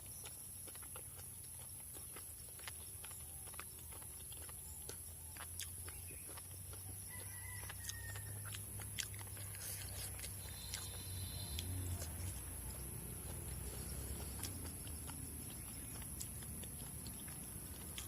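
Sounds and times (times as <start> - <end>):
mouth eating clicks and smacks: 0.0 - 18.0
steady low hum: 8.2 - 18.0.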